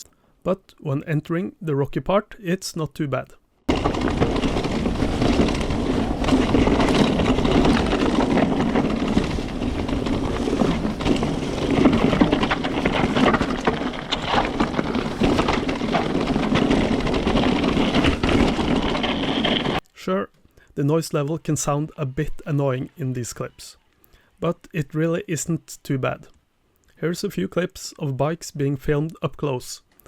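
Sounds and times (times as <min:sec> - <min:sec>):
bike chattering and rattling: 0:03.7 - 0:19.8
tyre rumble: 0:03.7 - 0:19.8.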